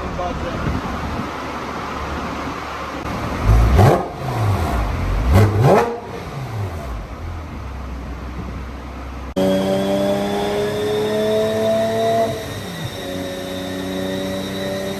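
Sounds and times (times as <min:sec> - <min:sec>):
car engine idling: 0:00.0 - 0:09.4
car engine revving: 0:02.9 - 0:14.9.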